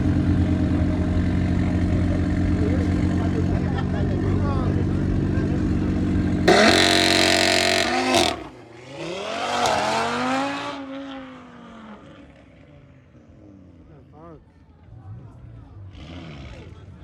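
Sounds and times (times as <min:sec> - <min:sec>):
car engine revving: 0:00.0 - 0:12.2, 0:15.7 - 0:17.0.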